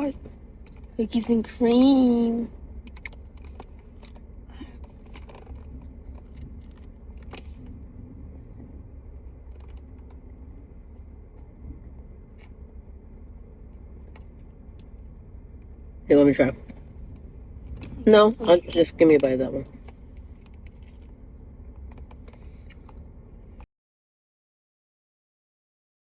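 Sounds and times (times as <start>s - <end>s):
car interior rumble: 0.0s - 23.7s
small clicks and rustles: 2.8s - 7.8s, 9.4s - 10.4s, 19.6s - 23.7s.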